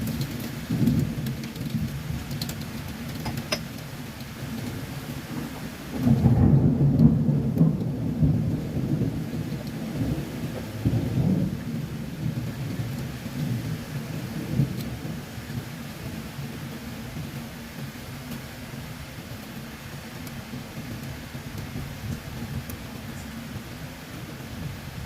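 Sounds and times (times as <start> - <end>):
thunder rumbling: 0.0 - 17.9
steady rain: 0.0 - 25.0.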